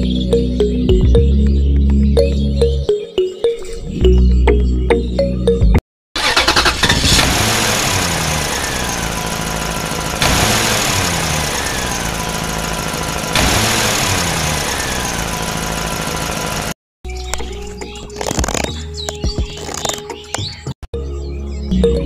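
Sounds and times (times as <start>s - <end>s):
loud noisy engine: 6.2s - 16.8s.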